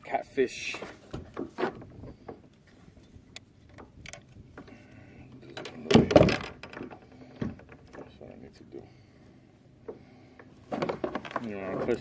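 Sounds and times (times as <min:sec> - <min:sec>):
knocks and clicks of gear: 0:05.4 - 0:08.2.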